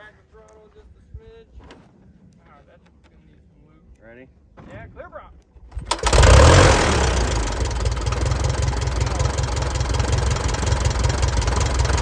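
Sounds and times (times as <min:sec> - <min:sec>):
light aircraft engine idling: 0:05.9 - 0:12.0.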